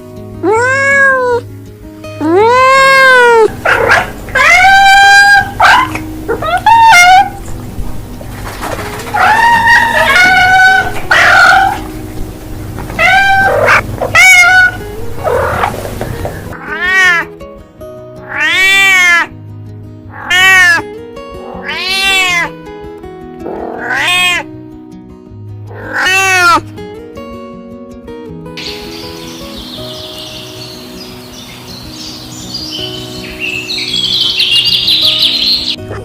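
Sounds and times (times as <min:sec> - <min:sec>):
background music: 0:00.0 - 0:36.0
cats meowing: 0:00.4 - 0:01.4, 0:02.2 - 0:07.5, 0:09.0 - 0:12.2, 0:12.8 - 0:17.3, 0:18.2 - 0:19.3, 0:20.1 - 0:22.5, 0:23.4 - 0:24.5, 0:25.7 - 0:26.6.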